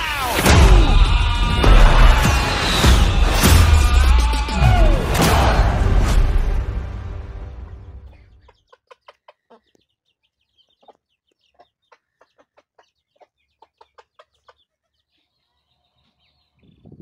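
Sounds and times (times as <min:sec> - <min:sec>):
chickens clucking: 0:08.0 - 0:16.9.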